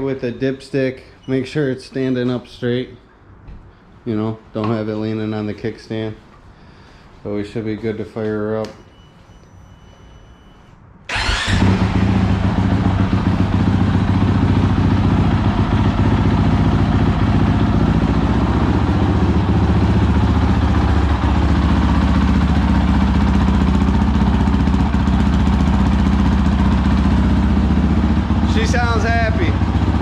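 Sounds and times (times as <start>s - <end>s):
motorcycle engine starting and idling: 11.1s - 30.0s.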